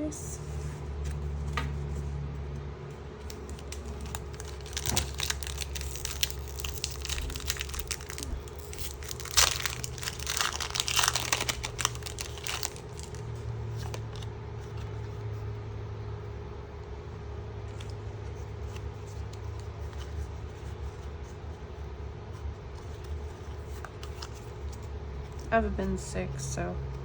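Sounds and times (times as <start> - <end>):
foil wrapper crinkling and tearing: 3.2 - 14.3.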